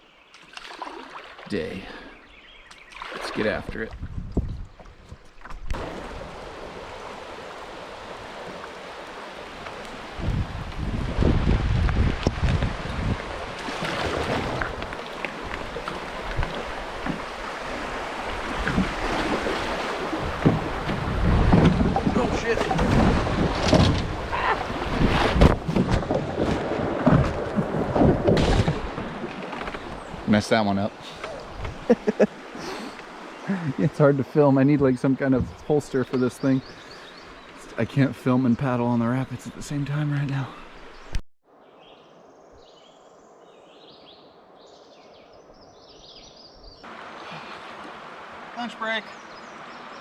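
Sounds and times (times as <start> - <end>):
songbirds singing: 0.0 - 3.9, 29.7 - 47.9, 48.6 - 50.0
water rushing and splashing: 0.4 - 41.1, 46.8 - 50.0
wind on microphone: 3.6 - 7.2, 9.9 - 30.3.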